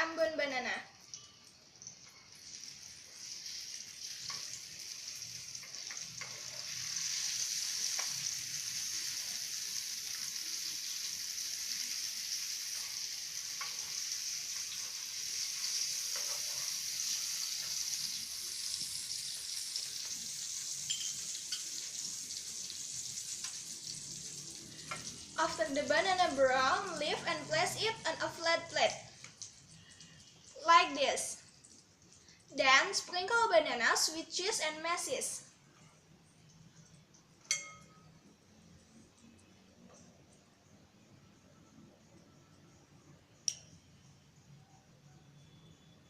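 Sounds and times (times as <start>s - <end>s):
banana slices sizzling in a pan: 0.0s - 44.6s.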